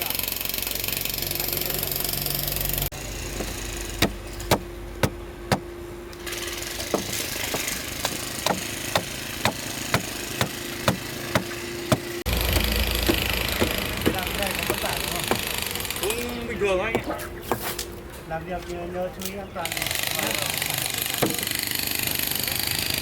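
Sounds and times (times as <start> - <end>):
engine humming: 0.0 - 23.0
hand tool striking stone: 6.8 - 16.0.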